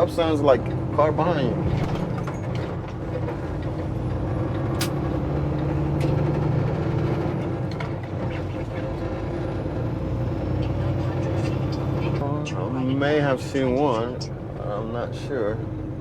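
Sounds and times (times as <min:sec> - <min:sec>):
truck diesel engine running: 0:00.0 - 0:12.2
sharp clicks: 0:04.8 - 0:05.0.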